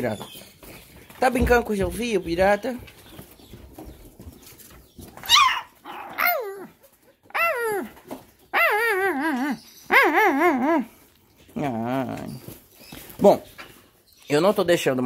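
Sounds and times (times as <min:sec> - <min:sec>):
puppy whining: 0:05.2 - 0:11.0.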